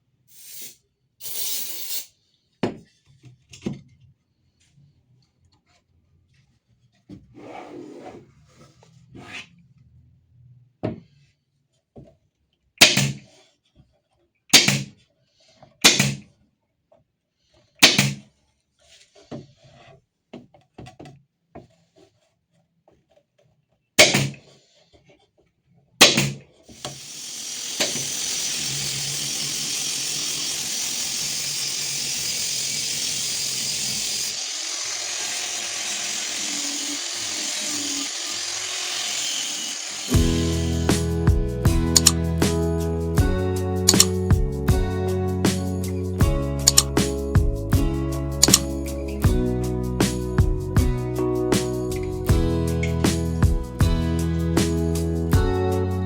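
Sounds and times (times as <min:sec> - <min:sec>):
rubbing and scraping: 0:05.6 - 0:09.8.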